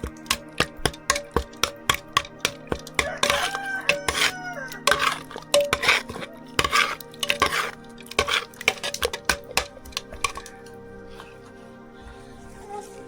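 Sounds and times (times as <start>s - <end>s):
rooster crowing: 3.0s - 5.3s.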